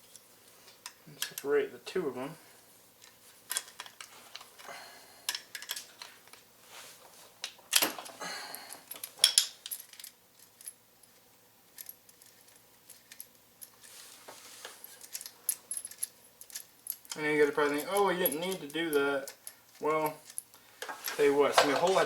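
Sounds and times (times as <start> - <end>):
small metal parts clinking: 3.0 - 4.7, 5.3 - 6.1, 8.7 - 14.0, 14.8 - 22.0.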